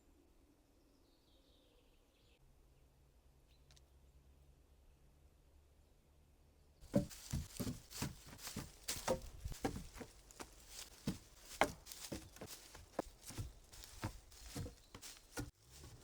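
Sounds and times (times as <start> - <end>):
dry twigs crunching and snapping: 6.9 - 16.0.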